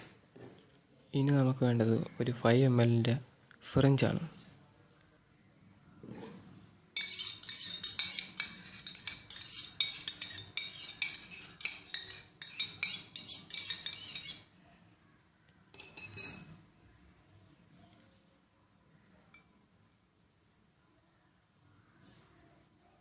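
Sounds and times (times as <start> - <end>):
metal spoon clinking in a cup: 7.0 - 14.5, 15.7 - 16.6.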